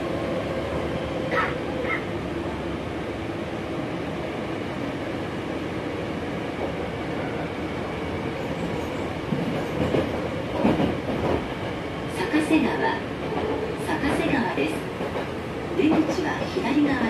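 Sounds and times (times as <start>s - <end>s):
train wheels rumbling on rails: 5.2s - 17.0s.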